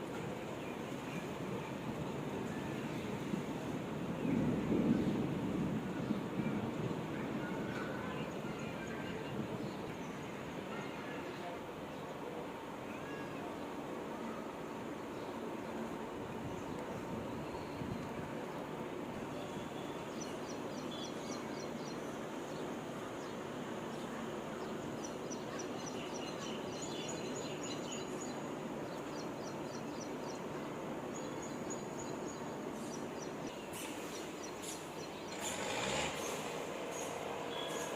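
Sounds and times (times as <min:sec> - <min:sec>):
outdoor background hiss: 0:00.0 - 0:37.9
birds chirping: 0:19.4 - 0:37.9.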